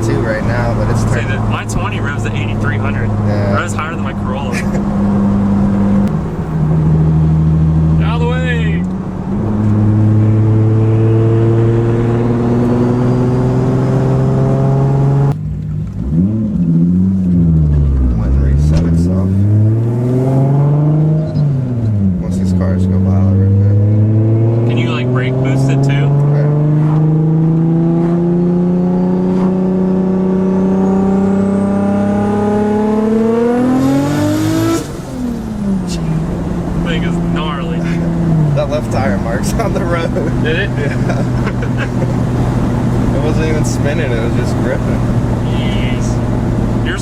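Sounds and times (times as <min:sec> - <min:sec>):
car engine revving under acceleration: 0:00.0 - 0:47.0.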